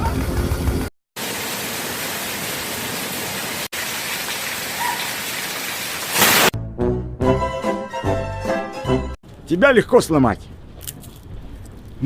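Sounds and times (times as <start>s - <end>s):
rain-like hiss: 1.2s - 6.5s.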